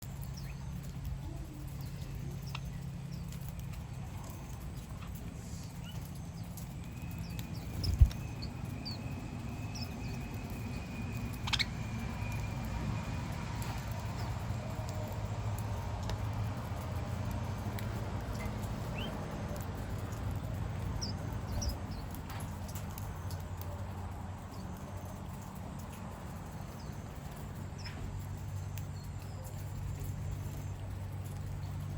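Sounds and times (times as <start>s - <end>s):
steady low rumble: 0.0s - 31.9s
bird chirps: 0.2s - 14.6s, 18.3s - 23.7s.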